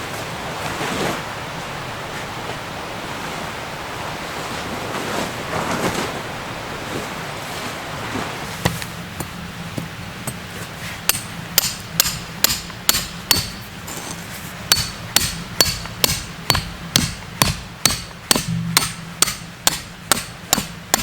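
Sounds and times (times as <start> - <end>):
hammer striking metal: 11.1 - 14.1, 14.7 - 21.0.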